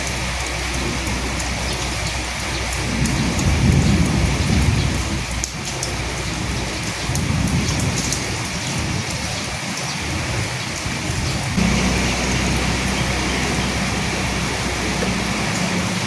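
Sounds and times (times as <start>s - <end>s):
raindrop ticks: 0.0s - 16.0s
steady rain falling: 0.0s - 16.0s
low rumble: 11.6s - 16.0s.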